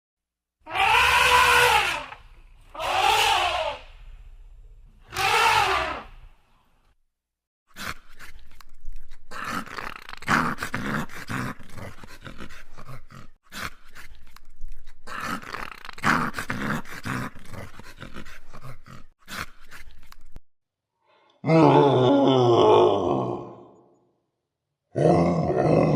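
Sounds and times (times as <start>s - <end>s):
dog growling: 9.3s - 13.4s.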